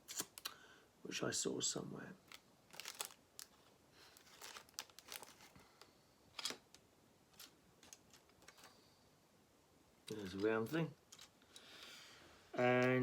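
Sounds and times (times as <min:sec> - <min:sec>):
plastic pieces rustling and clicking: 0:02.3 - 0:08.8, 0:10.1 - 0:11.8.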